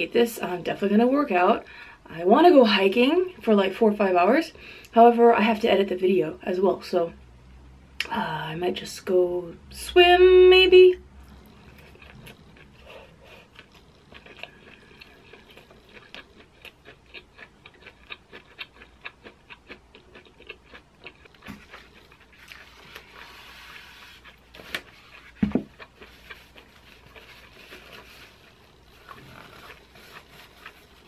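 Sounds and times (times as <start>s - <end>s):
wet chewing mouth clicks: 11.0s - 23.3s, 24.2s - 31.0s.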